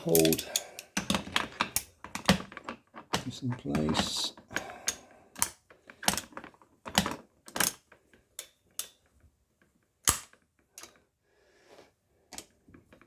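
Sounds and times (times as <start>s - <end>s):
metallic clicks and knocks of tools: 0.0s - 7.8s, 8.4s - 9.1s, 10.0s - 11.0s.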